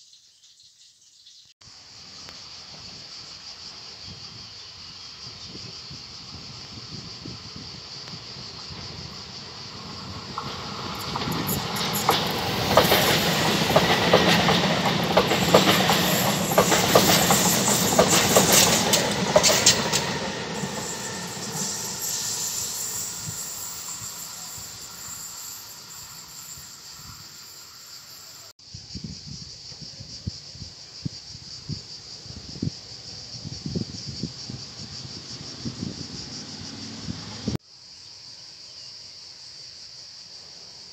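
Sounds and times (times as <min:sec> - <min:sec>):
train wheels clicking over rail joints: 0:08.8 - 0:28.5.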